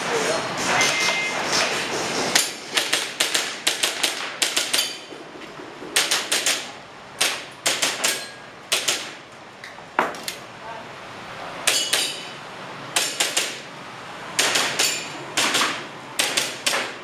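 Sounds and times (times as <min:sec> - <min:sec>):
airsoft pistol shots: 0:14.4 - 0:17.0.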